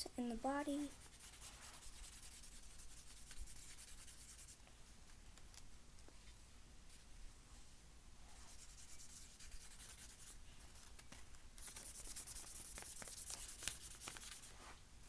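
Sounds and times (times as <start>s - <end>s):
pencil scratching on paper: 0.5s - 4.6s, 8.4s - 11.0s, 11.6s - 14.6s.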